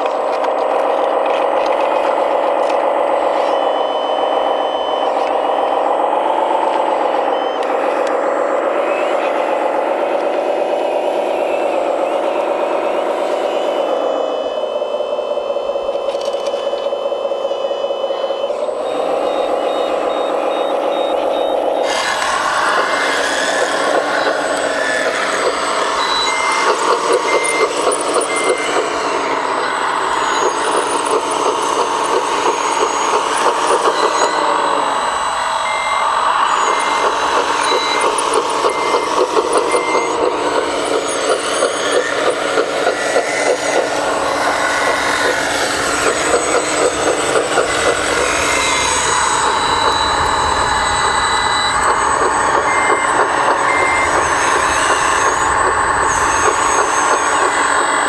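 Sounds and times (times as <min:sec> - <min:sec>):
model truck engine drone: 0:00.0 - 0:58.0
reversing beeper: 0:00.0 - 0:58.0.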